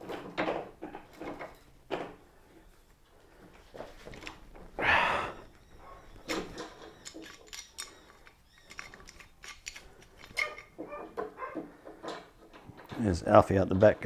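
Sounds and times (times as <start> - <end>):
metal tools clicking and knocking: 6.0 - 14.0.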